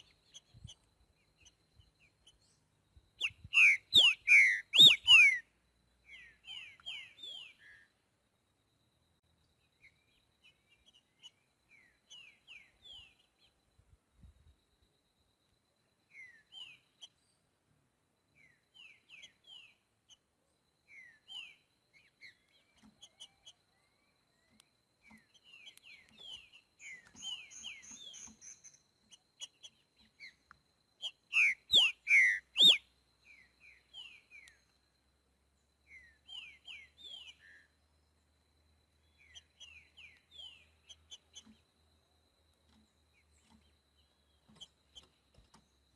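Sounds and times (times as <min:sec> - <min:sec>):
bird singing: 0:00.0 - 0:14.8, 0:15.8 - 0:45.9
soft falling bird chirps: 0:20.9 - 0:34.8, 0:38.9 - 0:45.9.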